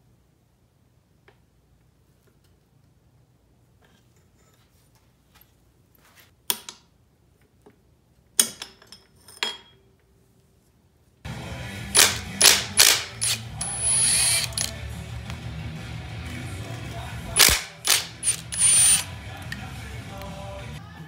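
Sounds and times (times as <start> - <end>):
metallic clicks of hand tools: 12.0 - 14.8, 17.4 - 19.6.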